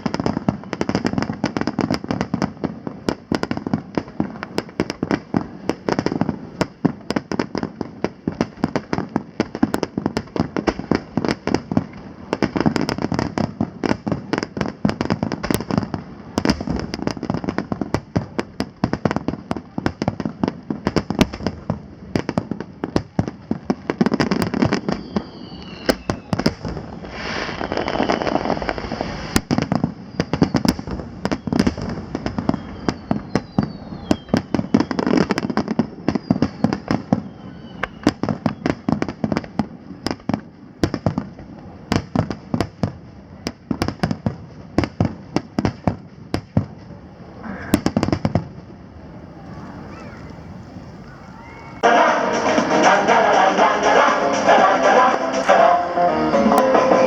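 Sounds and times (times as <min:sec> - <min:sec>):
deep firework bangs: 0:00.0 - 0:53.3
fireworks crackling and popping: 0:00.0 - 0:57.0
falling firework whistles: 0:24.0 - 0:40.2, 0:49.2 - 0:52.0.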